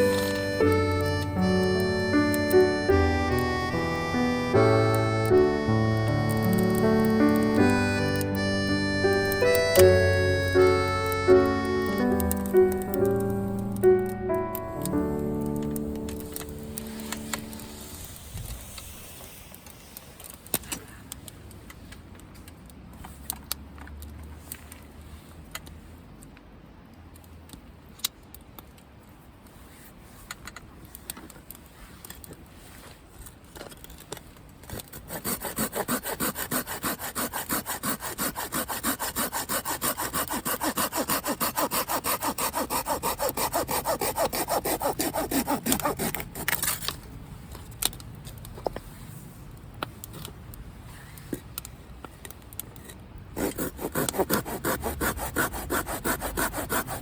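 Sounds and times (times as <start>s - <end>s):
hand saw sawing wood: 0.1s - 1.5s, 7.3s - 12.0s, 34.9s - 46.9s, 53.4s - 57.0s.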